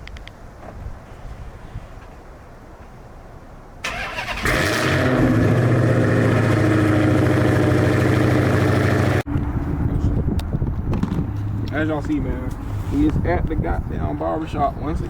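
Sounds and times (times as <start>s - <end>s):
car starter cranking: 3.8s - 5.7s
car engine idling: 3.8s - 9.2s.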